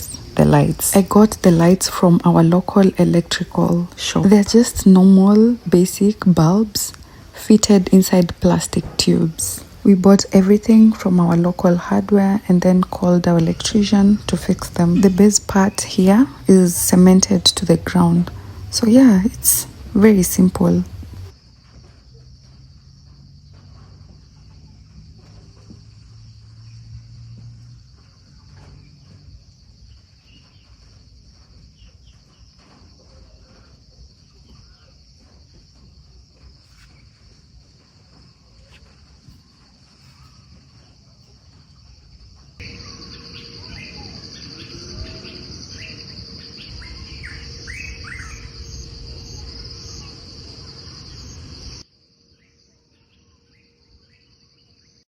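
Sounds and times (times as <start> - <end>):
birds chirping: 0.0 - 21.3, 38.2 - 55.0
crickets trilling: 0.0 - 55.0.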